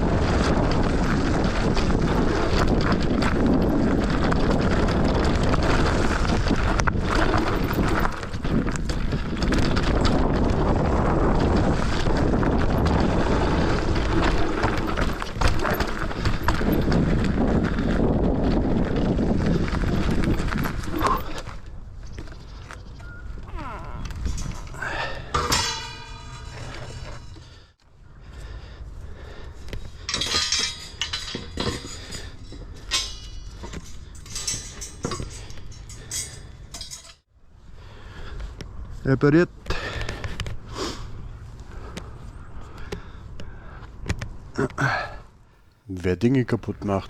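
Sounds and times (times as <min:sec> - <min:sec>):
wind on microphone: 0:00.0 - 0:21.5
tyres crunching over rock and dirt: 0:00.0 - 0:27.6
bike rattling and knocking: 0:00.0 - 0:27.8, 0:29.2 - 0:37.2.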